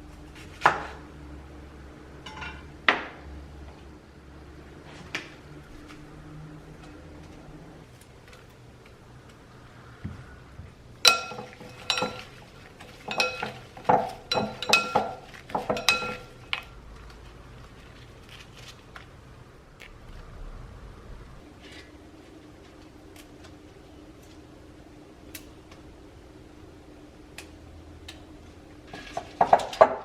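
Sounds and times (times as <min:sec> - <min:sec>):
dishes and cutlery clinking: 0:02.2 - 0:02.7, 0:11.0 - 0:16.7, 0:28.9 - 0:30.0.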